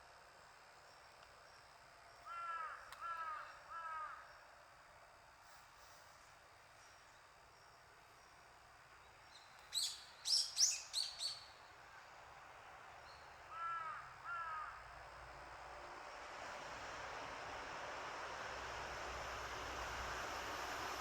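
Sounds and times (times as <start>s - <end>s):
lower clear bird calls: 9.3s - 11.6s.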